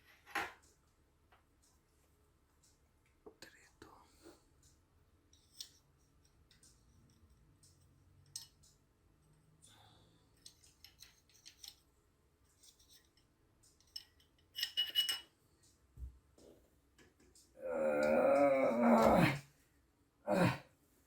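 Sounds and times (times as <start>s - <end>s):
metal tools clinking: 10.4s - 11.8s, 13.8s - 15.3s.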